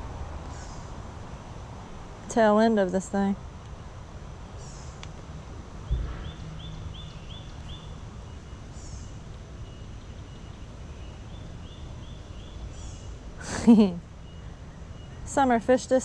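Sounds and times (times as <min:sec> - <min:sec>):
steady low rumble: 0:00.0 - 0:16.0
birds chirping: 0:04.2 - 0:16.0
low thump: 0:05.9 - 0:06.4.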